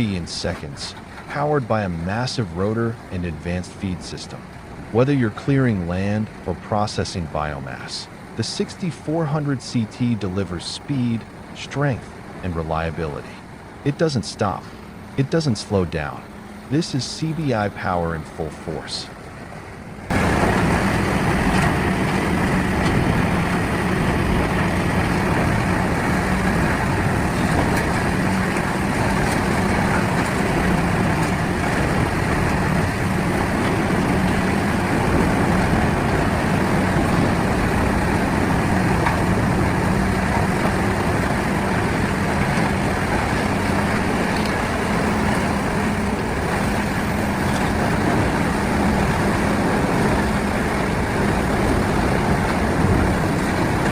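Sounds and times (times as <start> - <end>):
wood chipper running: 20.1 - 53.9.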